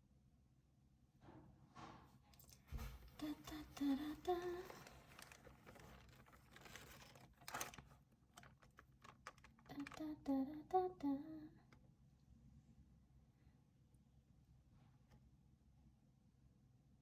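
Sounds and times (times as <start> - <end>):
person humming: 3.1 - 5.4, 9.6 - 11.7.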